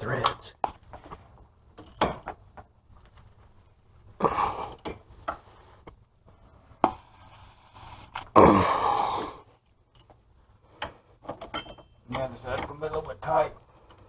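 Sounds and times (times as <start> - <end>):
metal tools clattering: 11.3 - 13.2.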